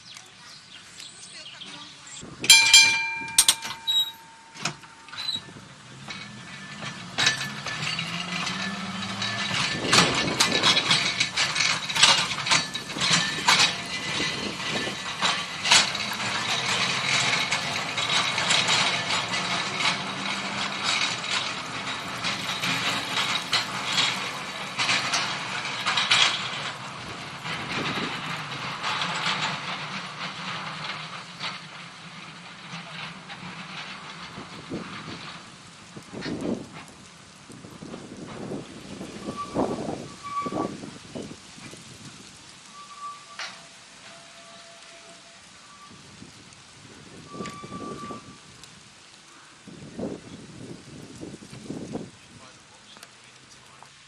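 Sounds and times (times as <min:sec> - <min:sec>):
wheels clicking and rattling: 0:00.0 - 0:54.0
tram motor whine: 0:02.5 - 0:36.9.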